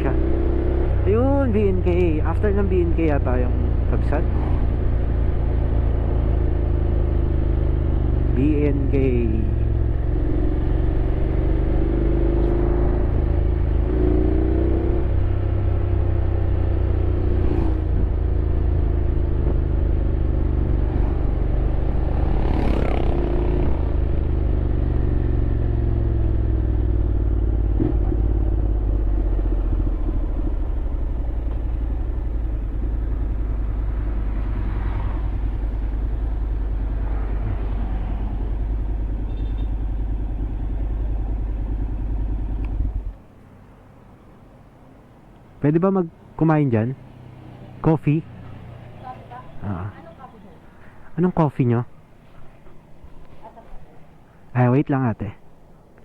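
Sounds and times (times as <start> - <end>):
road noise: 0.0 - 56.0
scooter engine running: 17.8 - 43.2.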